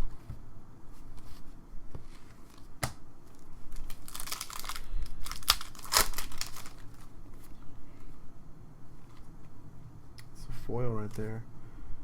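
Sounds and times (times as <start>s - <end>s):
wrapper tearing and crinkling: 3.3s - 7.1s.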